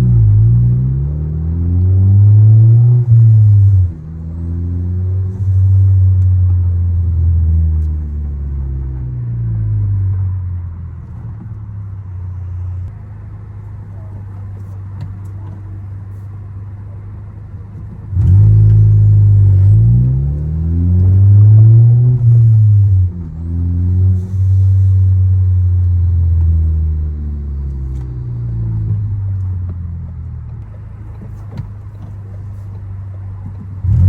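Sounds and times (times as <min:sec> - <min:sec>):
car engine revving: 0:00.0 - 0:10.3, 0:17.8 - 0:30.2, 0:33.4 - 0:34.0.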